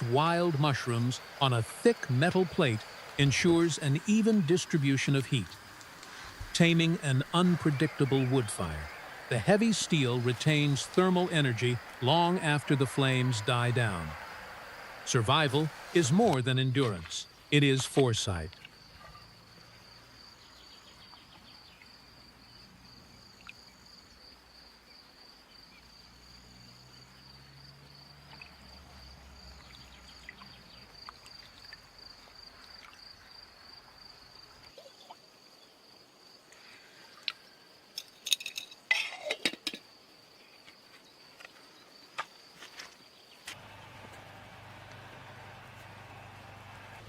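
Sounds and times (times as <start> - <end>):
insects trilling: 0.0 - 47.0
sharp clinks and knocks: 38.0 - 39.8.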